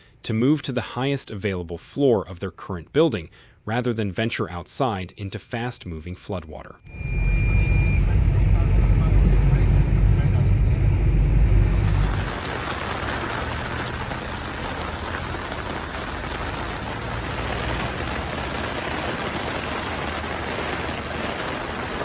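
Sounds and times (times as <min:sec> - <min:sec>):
low rumble: 0:06.9 - 0:20.2
heavy rain pouring: 0:11.4 - 0:22.0.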